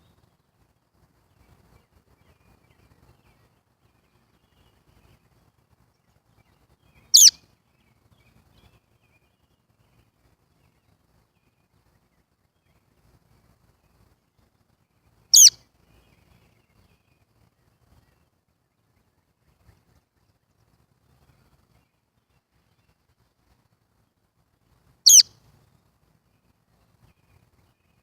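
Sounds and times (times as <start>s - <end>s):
baby bird chirp: 7.1s - 7.4s, 15.3s - 15.6s, 25.0s - 25.3s.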